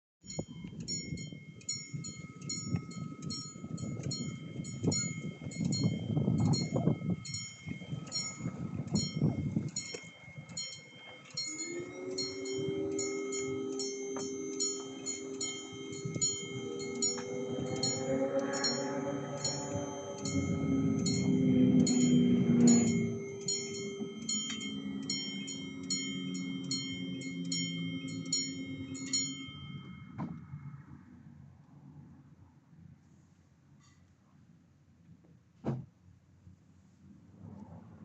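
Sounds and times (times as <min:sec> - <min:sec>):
level crossing bell ringing: 0:00.2 - 0:30.6
steady low hum: 0:00.3 - 0:32.3
low rumble: 0:11.4 - 0:32.6.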